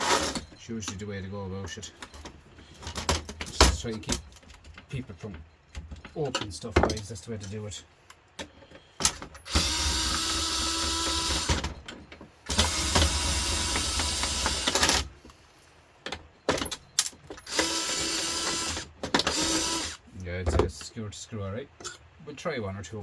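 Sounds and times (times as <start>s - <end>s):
power drill running: 9.5s - 11.6s, 12.5s - 15.1s, 17.4s - 20.0s.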